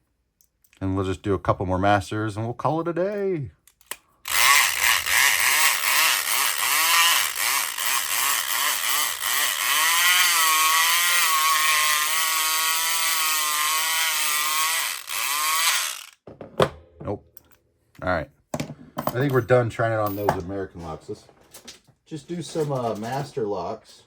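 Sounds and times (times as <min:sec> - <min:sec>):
electric pick gun motor buzzing: 0:04.3 - 0:16.2.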